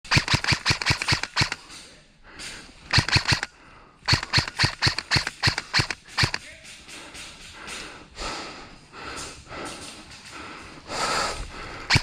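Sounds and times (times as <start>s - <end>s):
airsoft gun shots: 0.1s - 1.6s, 2.9s - 3.5s, 4.1s - 6.4s.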